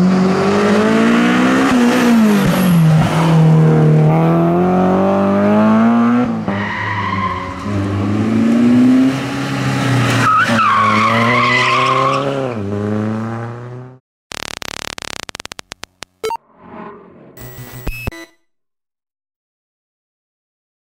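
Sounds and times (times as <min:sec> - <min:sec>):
car engine revving: 0:00.0 - 0:14.0
tyres squealing: 0:10.2 - 0:12.2
rapid clicks: 0:14.3 - 0:16.4.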